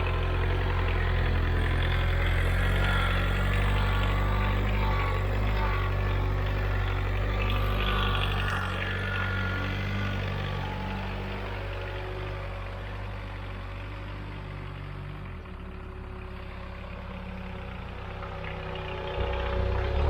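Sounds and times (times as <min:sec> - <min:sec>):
diesel tractor engine running: 0:00.0 - 0:20.0.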